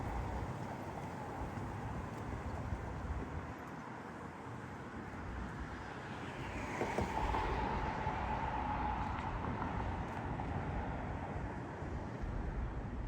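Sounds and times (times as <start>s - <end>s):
street traffic passing: 0.0s - 13.0s.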